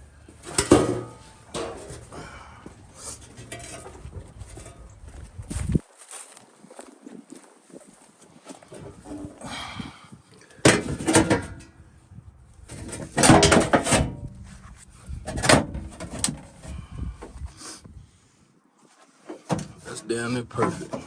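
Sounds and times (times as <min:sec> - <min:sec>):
sheet metal rattling and thumping: 0:00.5 - 0:02.0, 0:12.7 - 0:14.2.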